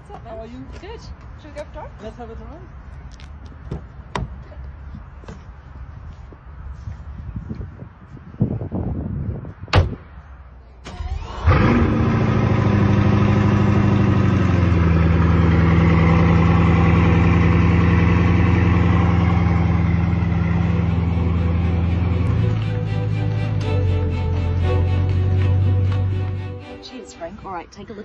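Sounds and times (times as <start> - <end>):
sharp thump: 9.7 - 10.2
car engine starting and idling: 10.8 - 28.0.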